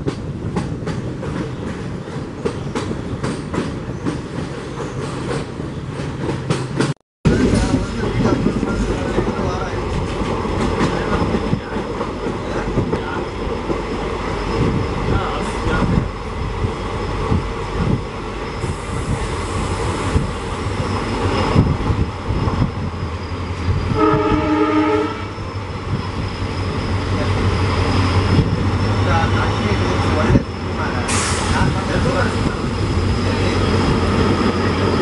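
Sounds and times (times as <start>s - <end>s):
train coach rumbling: 0.0s - 35.0s
locomotive horn: 23.9s - 25.4s.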